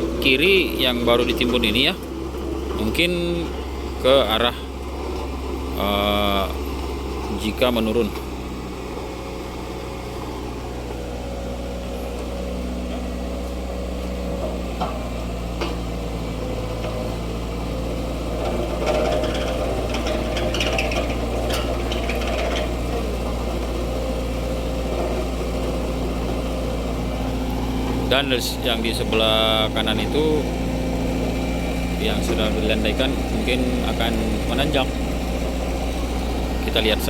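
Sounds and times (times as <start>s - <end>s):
engine running steadily: 0.0s - 37.0s
clattering and scraping: 12.9s - 37.0s.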